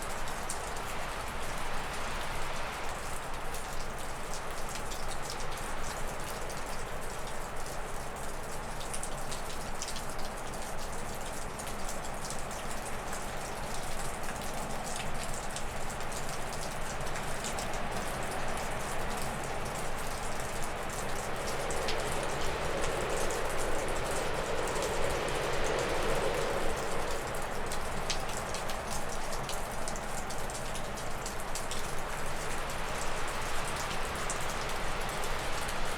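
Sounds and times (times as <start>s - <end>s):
meltwater dripping off roof: 0.0s - 35.9s
wind gusting through trees: 17.0s - 35.9s.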